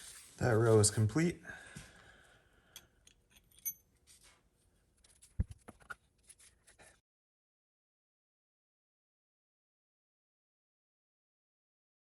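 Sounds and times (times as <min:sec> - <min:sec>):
small steel parts clicking: 0:02.7 - 0:03.8.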